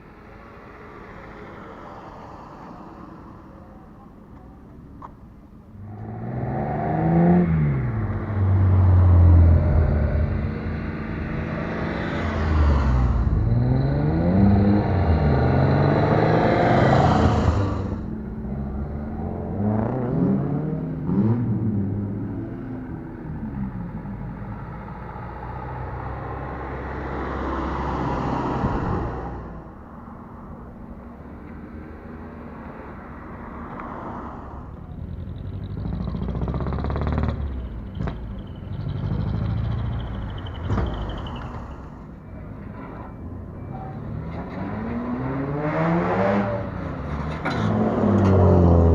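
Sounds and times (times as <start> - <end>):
car engine revving: 5.8 - 24.5, 34.7 - 42.1, 44.0 - 48.9
car engine revving loud exhaust: 34.8 - 41.2.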